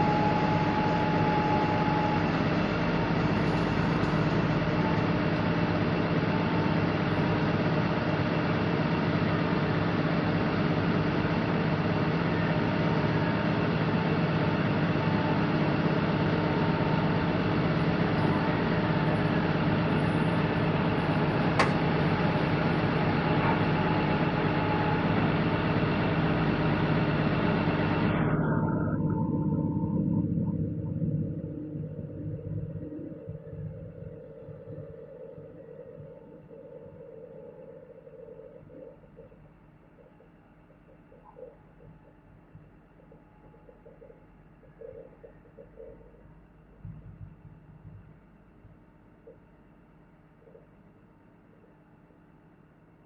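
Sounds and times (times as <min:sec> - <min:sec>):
diesel engine running: 0:00.0 - 0:44.1.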